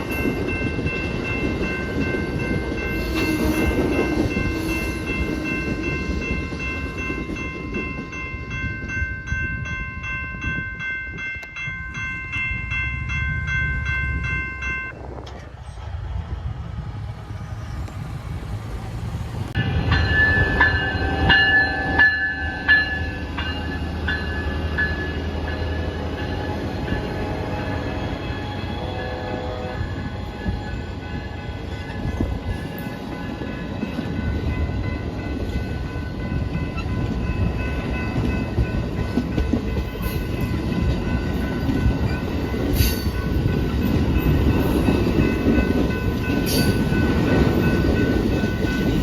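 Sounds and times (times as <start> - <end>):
crossing bell ringing tones: 0.0 - 15.1, 19.5 - 49.0
passenger train rumbling past: 0.0 - 49.0
train horn tones: 2.8 - 5.9, 25.1 - 32.0.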